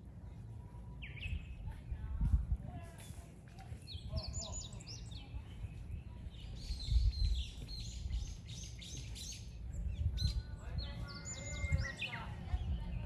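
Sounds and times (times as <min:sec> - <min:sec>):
low rumble on microphone: 0:00.0 - 0:13.0
wild birds chirping: 0:03.9 - 0:13.0.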